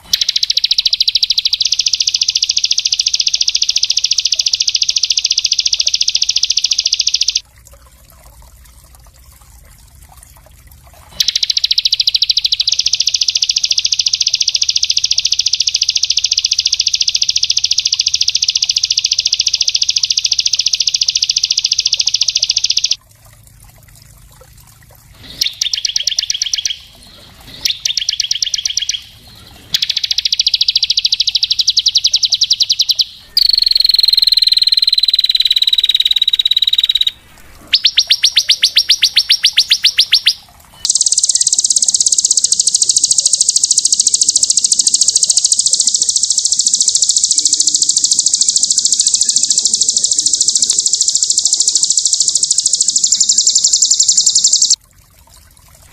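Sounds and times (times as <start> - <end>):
songbird trills: 0.0 - 7.4, 11.2 - 23.0, 25.2 - 54.8
whistled bird phrase: 25.3 - 54.8.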